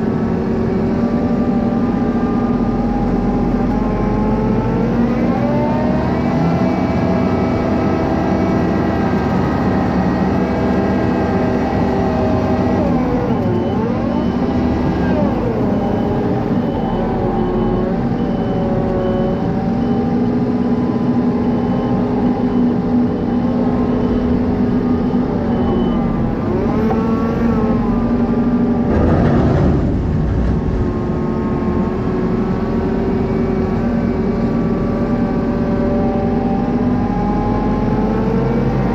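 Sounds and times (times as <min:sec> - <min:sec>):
farm machinery engine running: 0:00.0 - 0:38.9
high beeps: 0:20.8 - 0:27.2.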